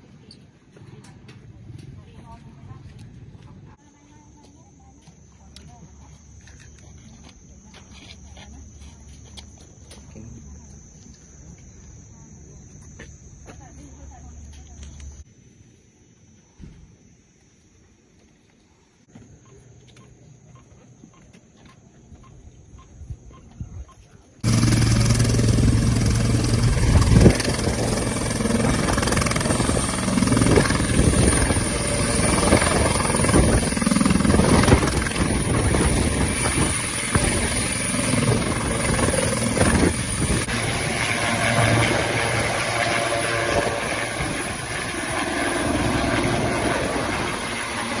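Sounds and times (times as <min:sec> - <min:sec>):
helicopter turbine and rotor: 0:24.4 - 0:48.0.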